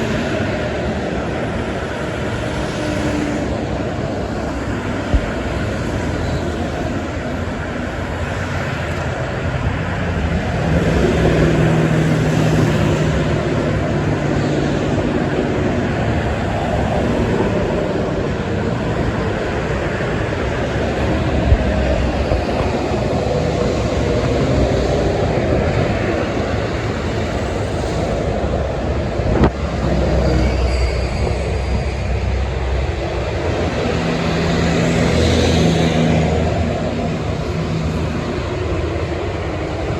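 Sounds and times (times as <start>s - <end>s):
highway traffic rushing: 0.0s - 39.9s
truck engine drone: 0.0s - 39.9s.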